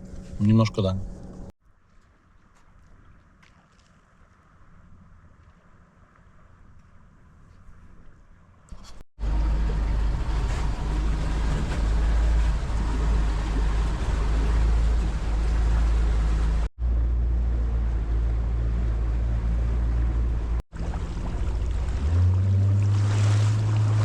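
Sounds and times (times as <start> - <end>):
wind rumble: 0.0 - 1.5, 9.2 - 24.0
outboard motor running: 9.2 - 24.0
rushing water: 9.3 - 16.7, 18.1 - 24.0.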